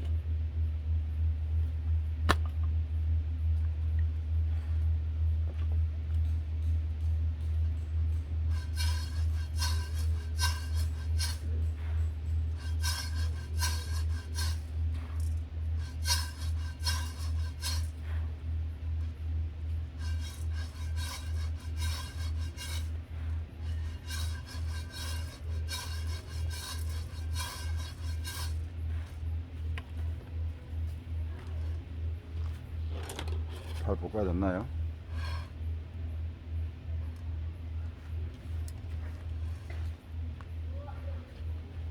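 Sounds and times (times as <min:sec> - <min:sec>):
pulsing low hum: 0:00.0 - 0:41.9
coffee beans scraping and rattling: 0:07.8 - 0:29.7, 0:35.0 - 0:35.6.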